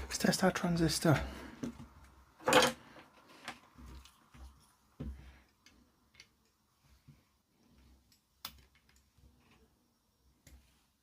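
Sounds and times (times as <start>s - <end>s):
small parts clicking and tapping: 1.6s - 6.6s, 8.0s - 9.7s.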